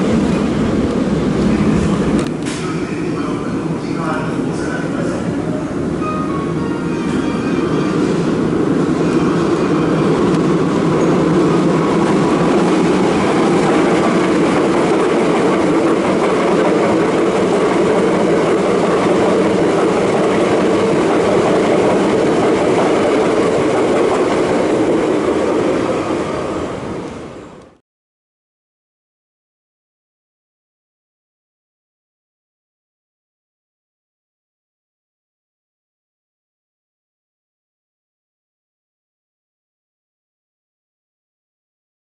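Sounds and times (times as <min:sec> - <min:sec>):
train wheels rumbling on rail: 0:00.0 - 0:27.8.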